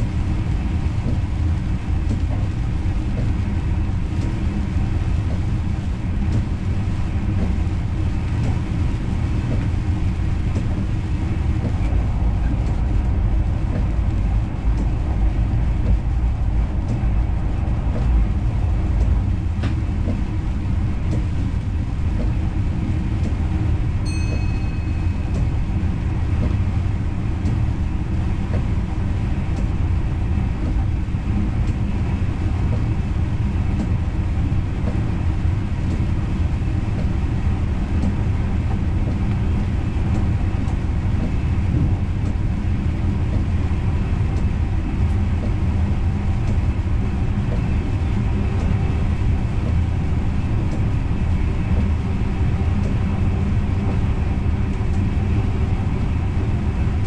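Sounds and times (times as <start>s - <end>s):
train rumbling: 0.0s - 57.0s
short high beep: 24.1s - 25.3s.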